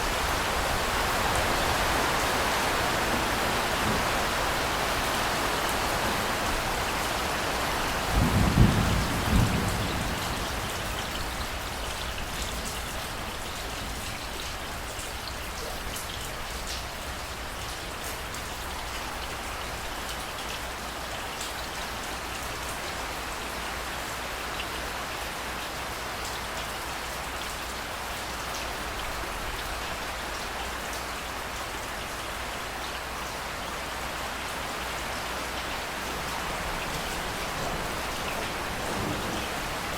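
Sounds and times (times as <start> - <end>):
steady rain falling: 0.0 - 39.9
low rumble of thunder: 8.0 - 12.0, 36.5 - 39.9.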